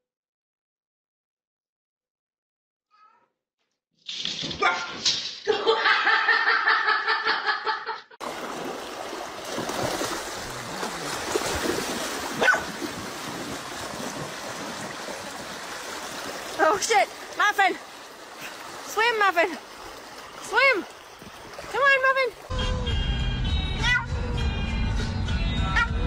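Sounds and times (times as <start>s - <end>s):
shallow stream rushing: 8.2s - 22.5s.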